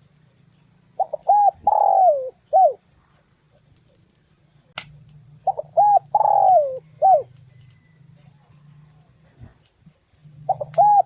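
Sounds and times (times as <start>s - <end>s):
dove cooing: 1.0s - 2.8s, 5.4s - 8.0s, 10.3s - 11.0s.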